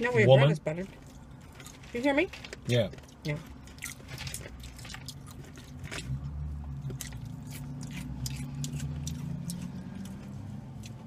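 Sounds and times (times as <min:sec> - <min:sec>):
chewing: 0:00.9 - 0:11.0.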